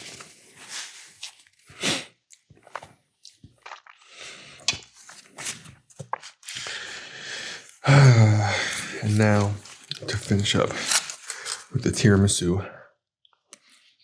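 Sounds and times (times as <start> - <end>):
wet chewing and mouth noises: 0.8 - 7.8, 8.5 - 11.8.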